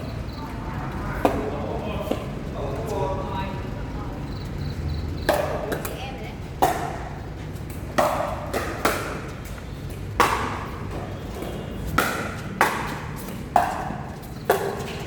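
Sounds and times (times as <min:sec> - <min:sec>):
paddles hitting plastic ball: 0:06.6 - 0:15.0.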